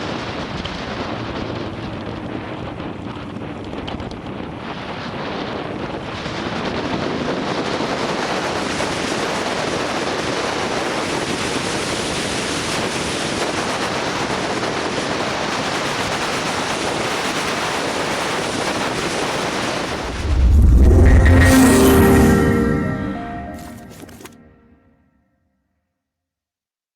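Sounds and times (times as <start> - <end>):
wind rushing over microphone: 19.7 - 21.3.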